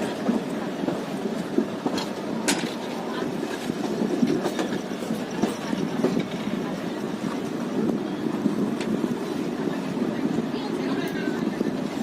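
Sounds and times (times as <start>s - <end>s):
wheels clicking and knocking: 0.0s - 9.1s
train rumbling: 0.0s - 12.0s.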